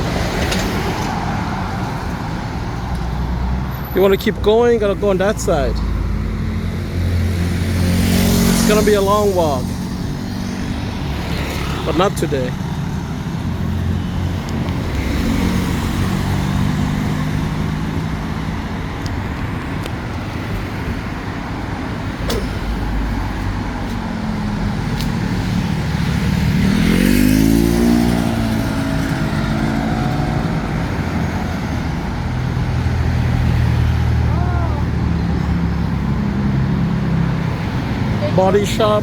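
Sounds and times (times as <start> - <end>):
vehicle engines running: 0.0 - 39.0
vehicle accelerating past: 5.9 - 12.4, 22.3 - 34.3.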